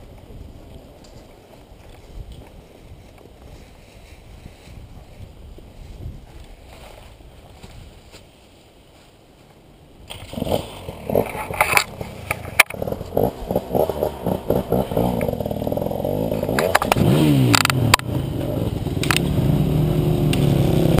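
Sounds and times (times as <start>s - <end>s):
dirt bike engine revving: 10.1s - 21.0s.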